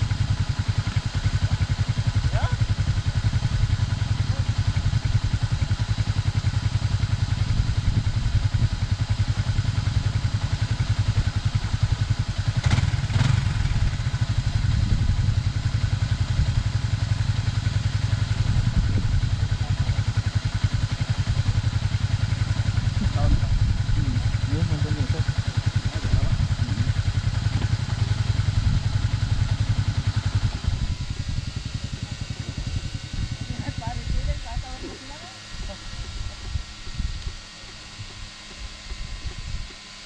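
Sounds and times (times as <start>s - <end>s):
engine clatter: 0.0s - 40.0s
scooter engine running: 0.0s - 40.0s.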